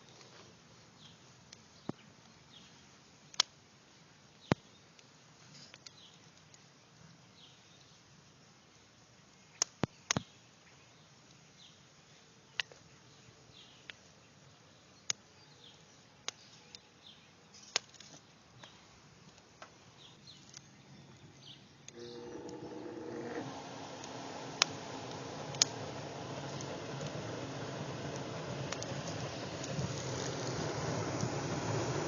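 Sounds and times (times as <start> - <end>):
low multi-tone hum: 20.8 - 32.0
sharp clicks and knocks: 22.3 - 32.0.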